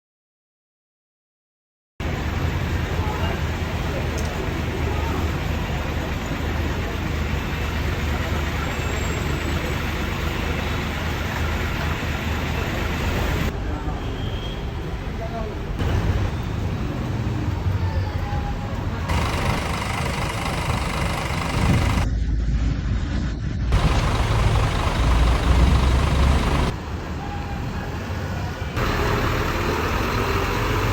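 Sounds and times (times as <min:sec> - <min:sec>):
bus diesel engine rumble: 0:02.0 - 0:13.9, 0:15.0 - 0:22.1, 0:23.7 - 0:30.9
road and wind noise: 0:02.0 - 0:30.9
coach engine humming: 0:18.7 - 0:22.1, 0:23.7 - 0:30.9.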